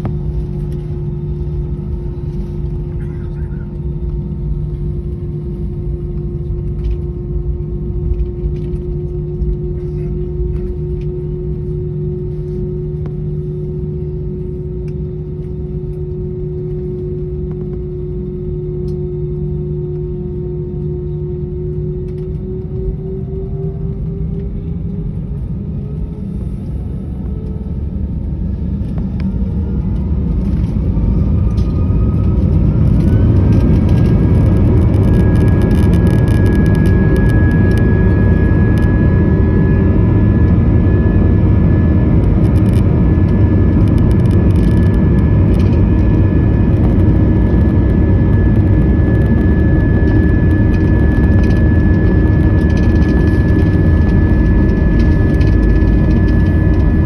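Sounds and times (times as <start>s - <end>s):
jet engines spooling up: 25.4s - 57.0s.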